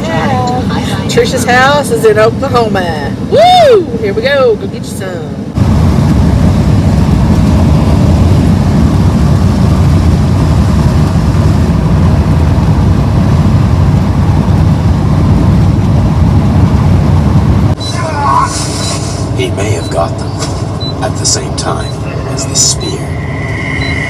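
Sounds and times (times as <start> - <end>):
wind buffeting microphone: 2.7 - 17.8.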